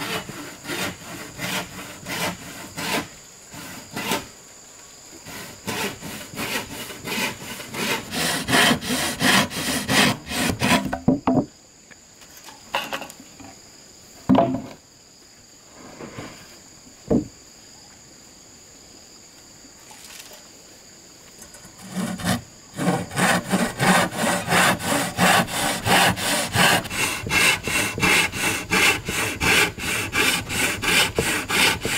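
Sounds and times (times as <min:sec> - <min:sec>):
hand saw cutting wood: 0:00.0 - 0:04.3, 0:05.2 - 0:11.0, 0:21.6 - 0:31.9
insects buzzing: 0:00.0 - 0:31.9
wood knocks: 0:10.8 - 0:11.5, 0:14.3 - 0:14.8, 0:17.1 - 0:17.3.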